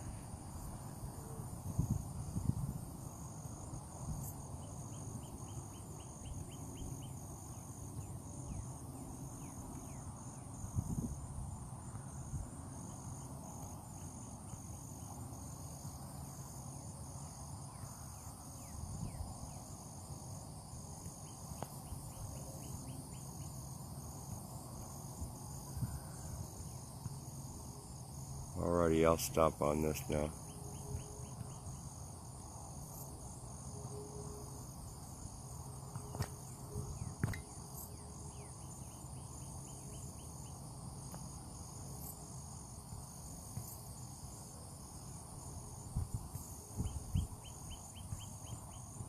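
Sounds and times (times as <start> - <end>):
wind rumble on microphone: 0.0 - 4.4, 10.5 - 12.6, 18.8 - 19.5, 24.8 - 26.6, 45.8 - 47.5
insects chirring: 0.0 - 49.0.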